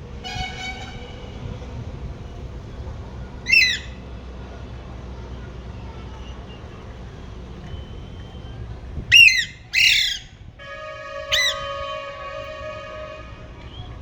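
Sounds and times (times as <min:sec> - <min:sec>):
parrot squawking: 0:03.5 - 0:03.9, 0:09.1 - 0:10.3.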